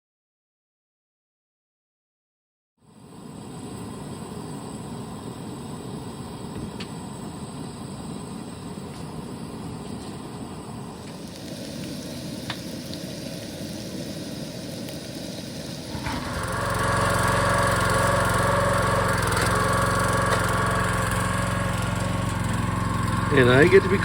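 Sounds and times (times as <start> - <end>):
small engine idling: 14.1 - 24.0.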